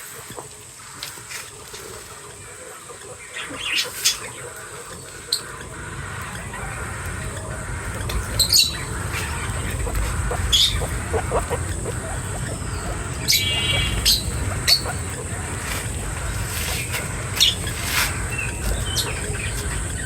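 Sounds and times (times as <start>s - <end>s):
steady low rumble: 4.4s - 20.0s.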